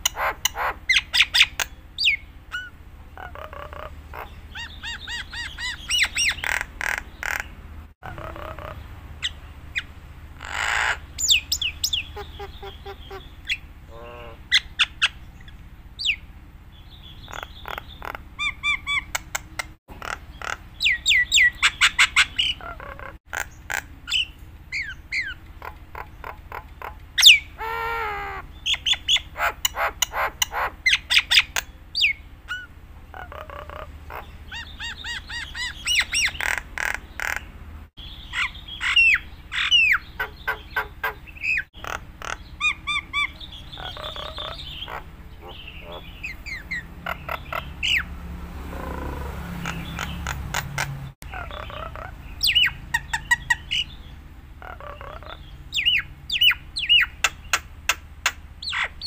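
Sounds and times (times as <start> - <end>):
bird squawk: 0.0 - 16.2, 17.0 - 54.0, 54.6 - 59.0
starling singing: 0.0 - 59.0
steady low hum: 0.0 - 59.0.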